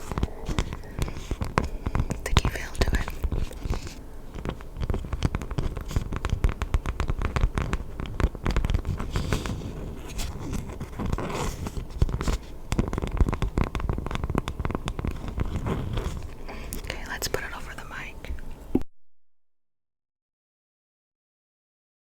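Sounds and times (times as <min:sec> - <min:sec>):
scratching and crackling clicks: 0:00.0 - 0:18.5.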